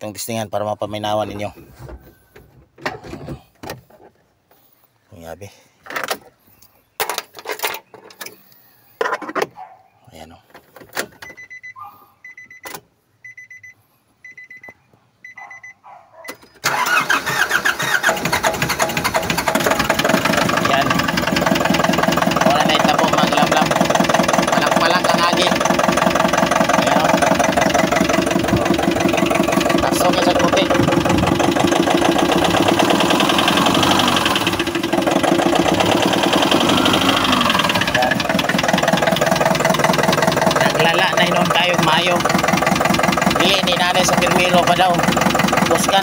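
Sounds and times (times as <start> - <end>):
dashboard warning chime beeps: 11.2 - 16.5
diesel engine cranking and knocking: 16.3 - 46.0.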